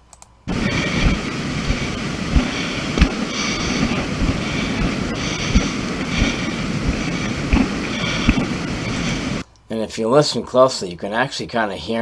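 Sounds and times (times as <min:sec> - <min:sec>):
footsteps on rock: 0:00.5 - 0:09.4
hiker breathing heavily: 0:00.5 - 0:09.4
wind buffeting microphone: 0:00.5 - 0:09.4.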